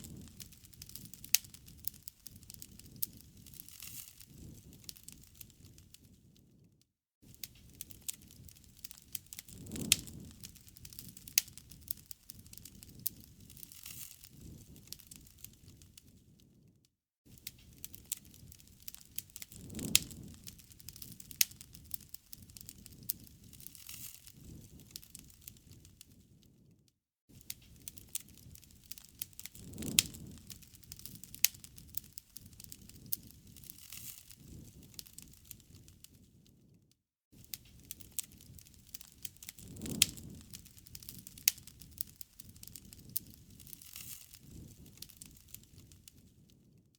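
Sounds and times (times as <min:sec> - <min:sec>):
wood fire crackling and popping: 0:00.0 - 0:16.7, 0:17.3 - 0:36.8, 0:37.4 - 0:46.9
low rumble of flames: 0:00.0 - 0:36.8, 0:37.4 - 0:46.9.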